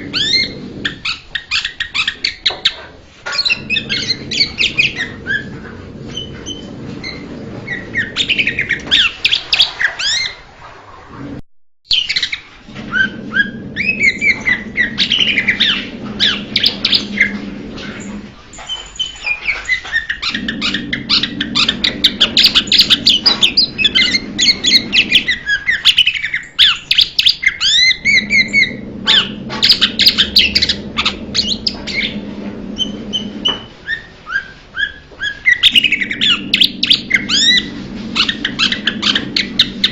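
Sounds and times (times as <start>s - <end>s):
low steady hum: 27.8s - 33.9s, 35.7s - 39.9s.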